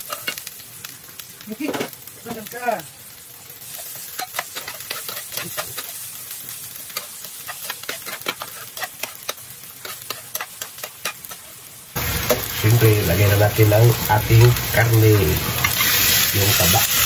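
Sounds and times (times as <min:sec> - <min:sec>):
onions sizzling in hot oil: 0:00.0 - 0:17.0
spatula scraping a pan: 0:03.7 - 0:06.1, 0:06.9 - 0:11.5, 0:15.5 - 0:17.0.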